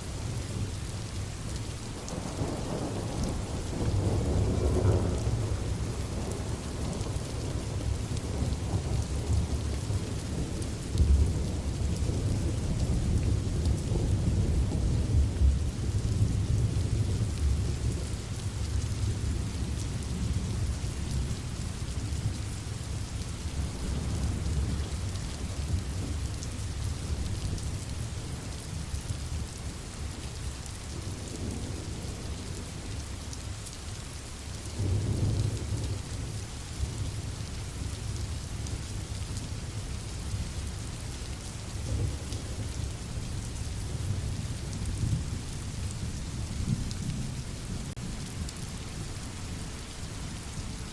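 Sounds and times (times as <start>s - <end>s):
rain hiss: 0.0s - 50.9s
low thunder rumbling: 2.0s - 18.1s.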